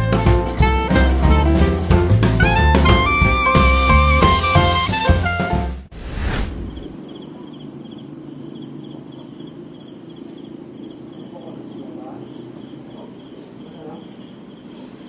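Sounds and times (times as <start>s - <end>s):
crickets chirping: 6.8s - 15.0s.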